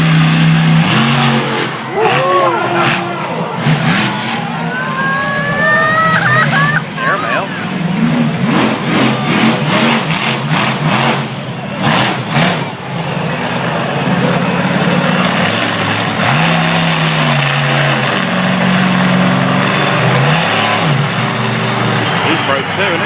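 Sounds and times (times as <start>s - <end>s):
monster truck engine revving: 0.0s - 23.0s.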